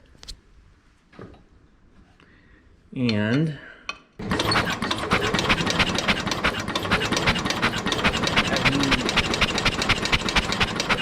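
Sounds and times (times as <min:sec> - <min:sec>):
engine cranking by electric starter: 0:04.2 - 0:11.0.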